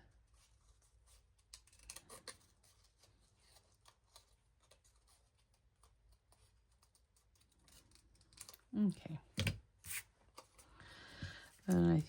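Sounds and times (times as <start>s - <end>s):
scissors cutting paper: 1.4s - 3.0s.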